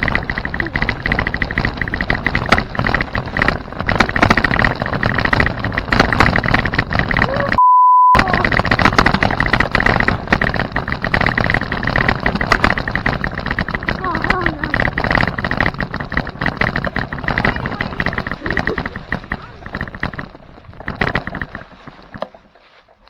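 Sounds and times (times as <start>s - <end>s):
bicycle rattling over rough trail: 0.0s - 7.6s, 8.2s - 23.0s
censor bleep: 7.6s - 8.2s.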